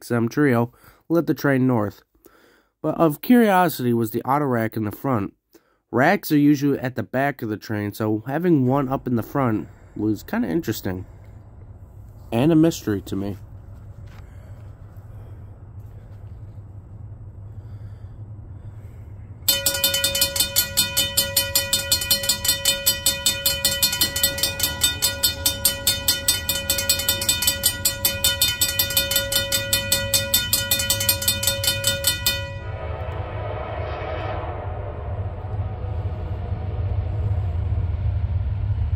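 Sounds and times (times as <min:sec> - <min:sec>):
low rumble: 0:08.6 - 0:38.9
train noise: 0:08.7 - 0:38.9
crossing bell ringing rapidly: 0:19.5 - 0:32.8.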